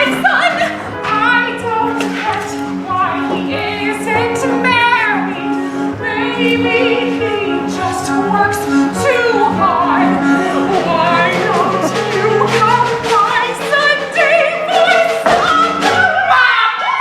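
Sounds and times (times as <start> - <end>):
operatic singing: 0.0 - 17.0
sustained low notes: 2.4 - 15.8.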